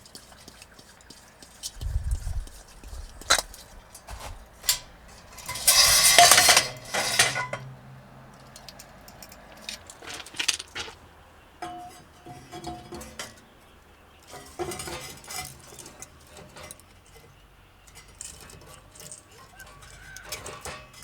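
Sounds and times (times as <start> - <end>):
metal cookware clinking: 3.3 - 7.8.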